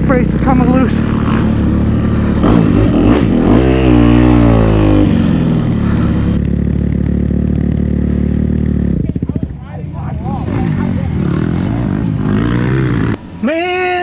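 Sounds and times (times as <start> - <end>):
dirt bike engine revving: 0.0 - 6.4, 10.4 - 14.0.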